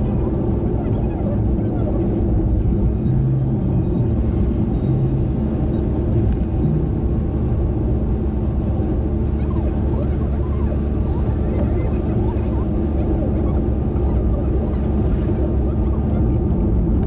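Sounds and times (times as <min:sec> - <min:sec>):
car driving on road: 0:00.0 - 0:17.0.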